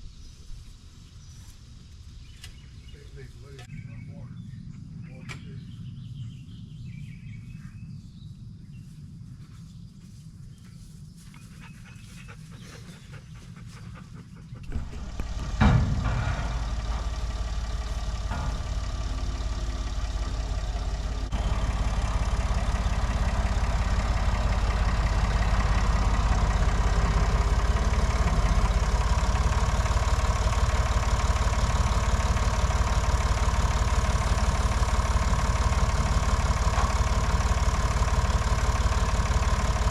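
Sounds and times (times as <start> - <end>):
tractor engine starting and running: 12.2 - 39.9.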